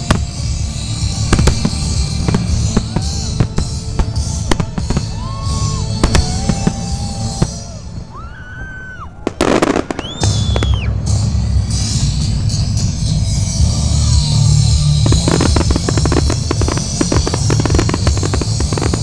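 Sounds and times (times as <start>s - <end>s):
music with a steady beat: 0.0s - 8.0s, 9.4s - 19.0s
fireworks bangs and crackles: 0.0s - 19.0s
fireworks whistling: 0.0s - 19.0s
firework launch rushing: 9.3s - 12.2s.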